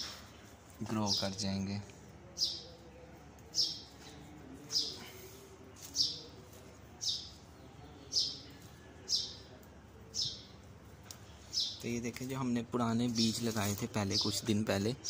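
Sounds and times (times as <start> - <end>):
bird chirping: 0.0 - 12.3.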